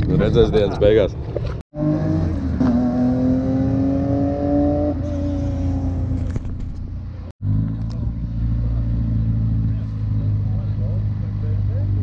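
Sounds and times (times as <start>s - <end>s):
rally car engine revving: 1.8s - 6.4s.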